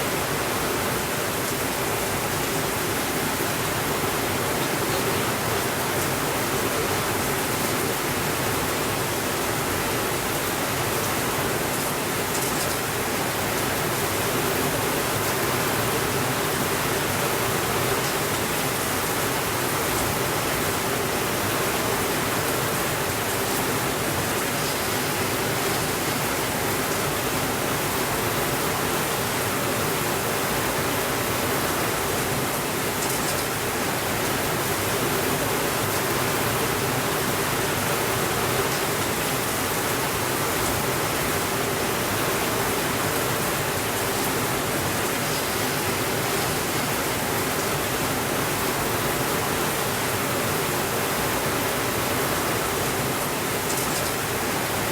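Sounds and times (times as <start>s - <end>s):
steady rainfall: 0.0s - 54.9s.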